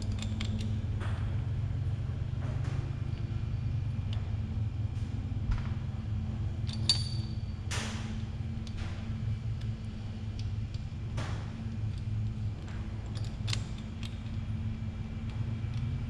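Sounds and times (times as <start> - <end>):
steady low hum: 0.0 - 16.0
small metal parts clinking: 6.7 - 7.4.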